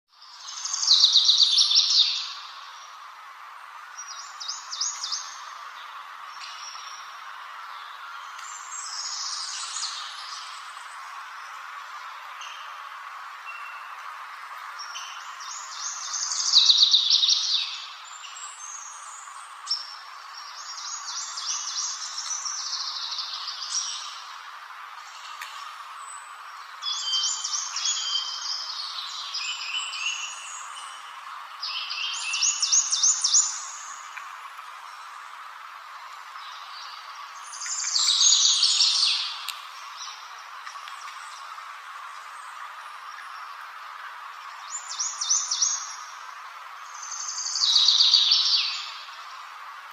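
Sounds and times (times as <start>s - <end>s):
songbird singing trills: 0.1s - 3.0s, 14.7s - 24.4s, 25.0s - 35.3s, 36.2s - 49.4s
steady background hiss: 0.1s - 49.9s.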